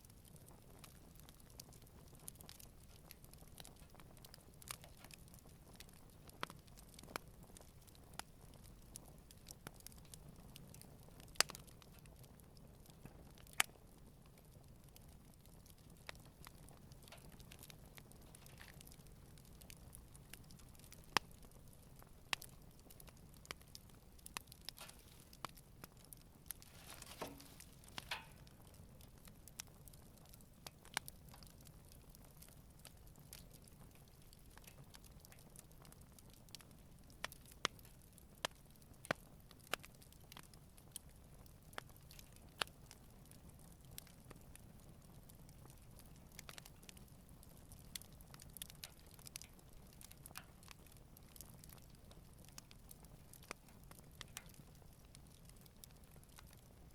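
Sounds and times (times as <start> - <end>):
campfire crackling: 0.0 - 56.9
soft hiss: 22.2 - 29.6.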